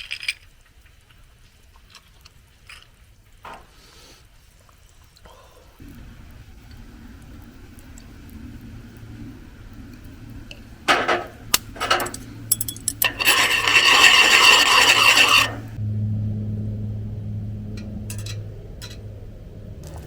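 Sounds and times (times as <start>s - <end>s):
low steady hum: 5.7s - 20.0s
rough rasping scrapes: 11.2s - 15.8s.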